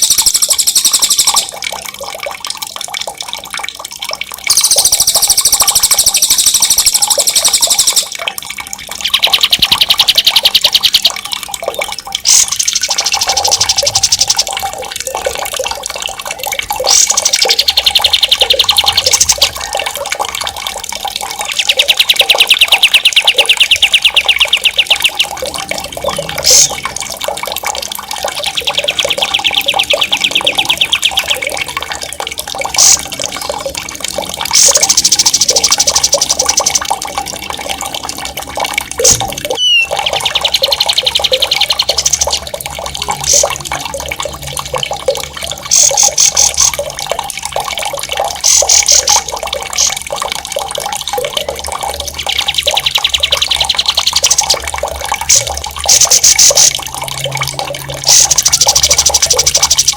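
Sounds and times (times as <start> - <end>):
running water: 0.0 - 59.9
sharp whistled bird note: 39.6 - 39.9
songbird rolling trills: 39.6 - 41.5.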